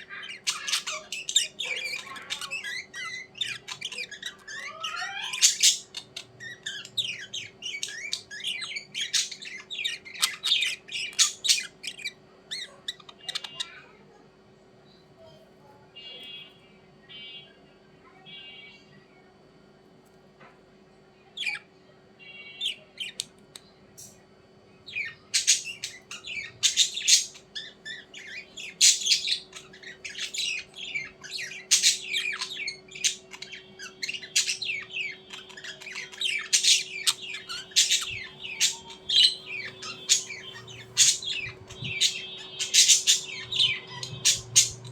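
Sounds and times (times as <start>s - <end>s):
birds chirping and squawking: 0.0s - 13.9s, 21.4s - 44.9s
faint steady hum: 0.0s - 44.9s.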